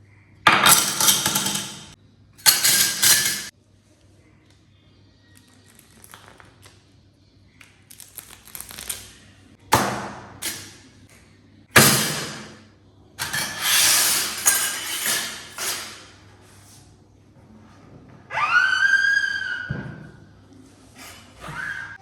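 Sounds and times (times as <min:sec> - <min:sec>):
craft tools scraping on table: 0:13.2 - 0:16.1.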